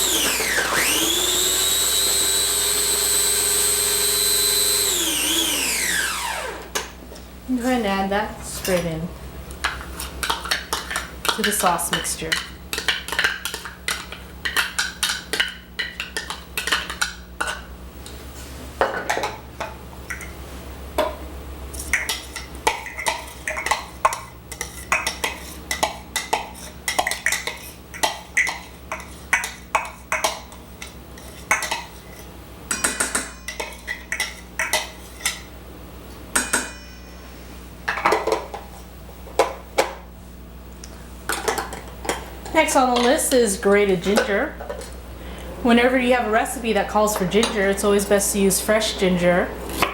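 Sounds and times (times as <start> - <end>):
utensils clinking against bowls: 9.6 - 17.6, 21.8 - 35.5, 41.3 - 45.0, 46.9 - 48.1.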